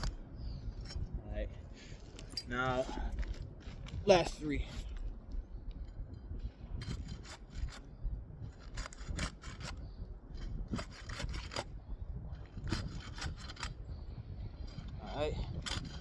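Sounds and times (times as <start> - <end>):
shingles rasping scrapes: 0.0 - 1.0, 6.8 - 7.9, 8.5 - 11.7, 12.4 - 13.8, 14.6 - 16.0
low wind rumble: 0.0 - 16.0.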